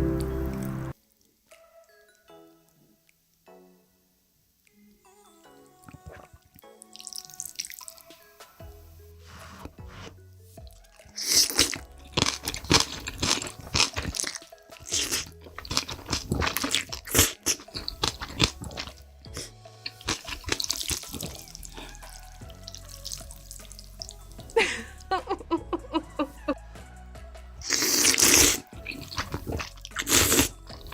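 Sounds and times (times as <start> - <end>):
background music with bass: 0.0 - 1.0, 8.6 - 14.3, 15.0 - 30.9
noodle slurping and chewing: 5.9 - 8.3, 9.3 - 24.6, 27.6 - 30.9.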